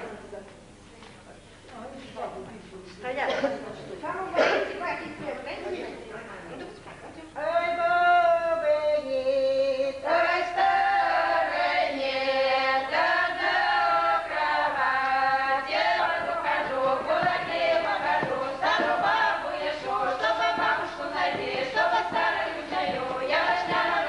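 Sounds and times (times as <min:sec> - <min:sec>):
choir singing unaccompanied: 0:09.6 - 0:24.0.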